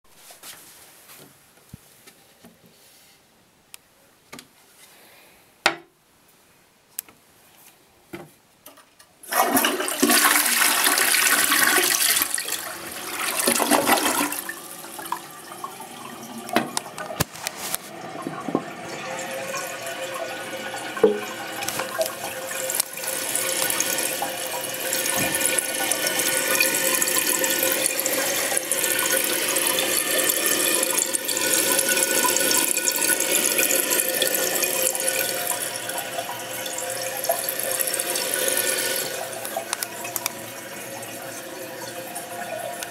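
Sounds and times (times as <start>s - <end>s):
toilet flushing: 9.2s - 42.9s
toilet tank refilling hiss: 9.2s - 42.9s.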